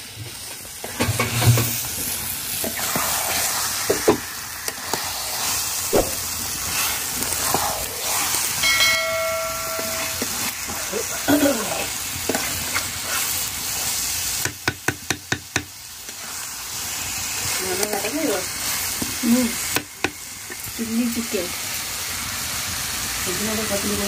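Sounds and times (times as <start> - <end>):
chicken sizzling in a pan: 0.0 - 24.0
metal spatula scraping a pan: 6.6 - 14.1
short ringing tone: 8.6 - 10.3.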